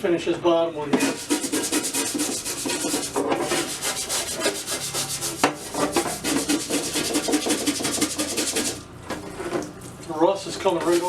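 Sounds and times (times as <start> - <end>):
scrubbing rusty metal: 1.0 - 8.9, 10.6 - 11.0.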